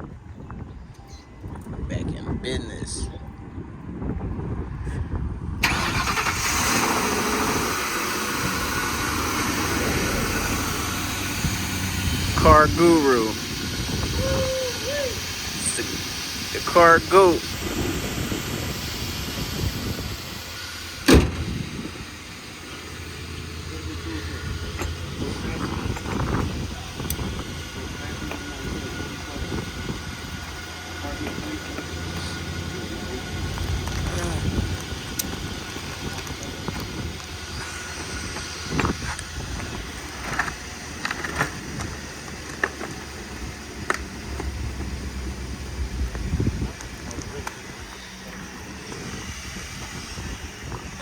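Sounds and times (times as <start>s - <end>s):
wind buffeting microphone: 0.0s - 23.4s, 24.2s - 51.0s
steady low rumble: 0.0s - 51.0s
car panel slamming shut: 21.0s - 21.6s.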